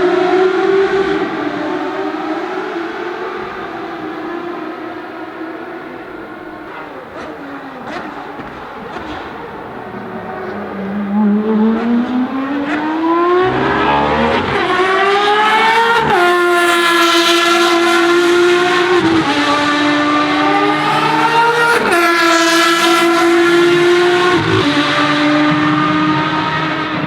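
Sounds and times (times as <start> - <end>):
racing car engine revving: 6.7 - 27.0.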